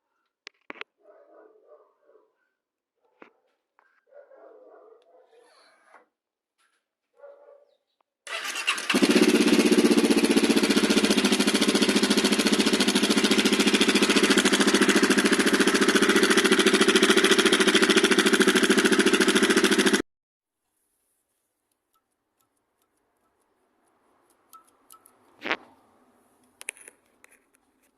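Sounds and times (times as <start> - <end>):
motorcycle engine starting and idling: 8.3 - 20.0.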